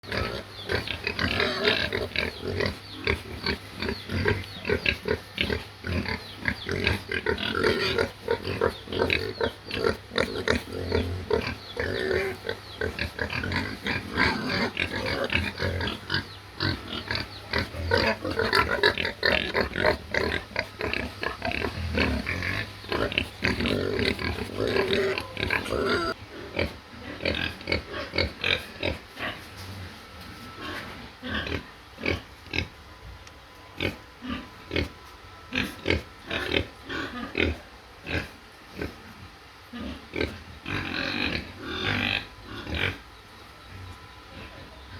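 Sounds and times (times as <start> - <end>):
pig grunting: 0.0 - 29.5, 39.7 - 43.0.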